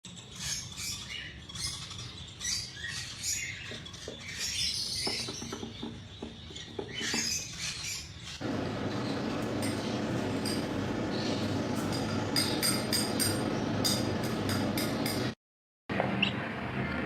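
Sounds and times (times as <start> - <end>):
parrots chirping and squeaking: 0.1 - 13.7.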